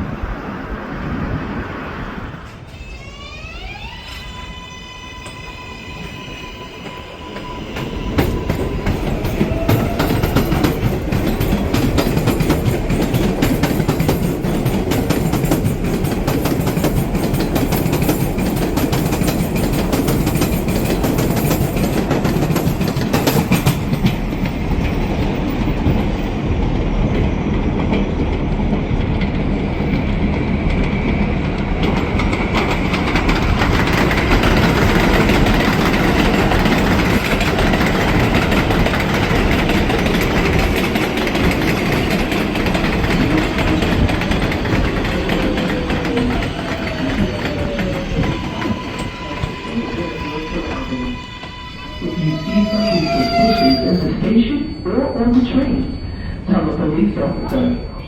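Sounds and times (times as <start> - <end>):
subway train wheels clacking: 0.0 - 58.0.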